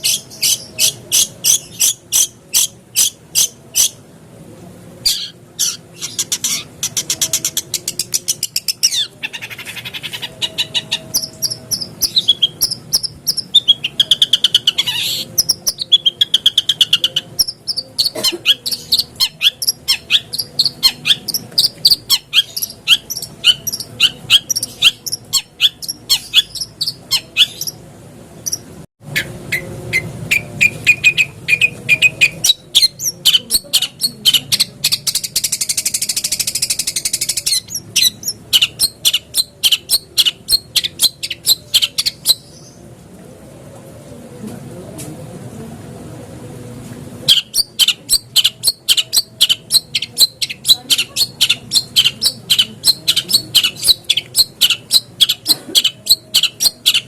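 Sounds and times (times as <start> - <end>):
harsh buzzing churr: 5.0 - 28.6.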